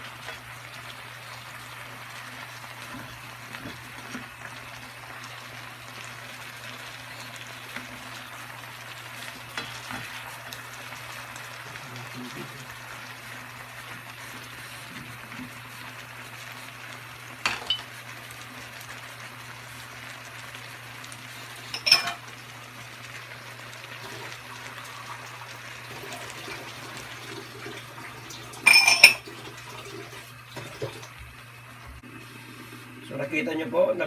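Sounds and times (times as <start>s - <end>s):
vegetables sizzling in frying pan: 0.0s - 34.0s
kitchenware clatter: 17.4s - 17.9s, 21.7s - 22.2s, 28.6s - 29.3s
kitchenware clinks: 21.8s - 22.2s, 28.6s - 29.2s.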